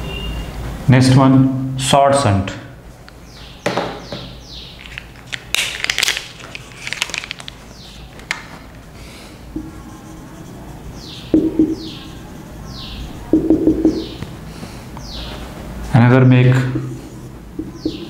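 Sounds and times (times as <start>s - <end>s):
small birds chirping: 3.1s - 5.4s, 6.6s - 18.0s
rustling and handling noise: 4.8s - 9.8s.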